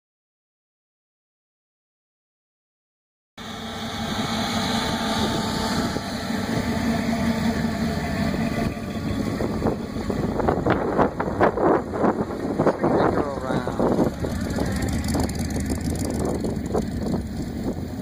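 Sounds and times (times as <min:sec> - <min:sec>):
car engine running: 0:03.4 - 0:18.0.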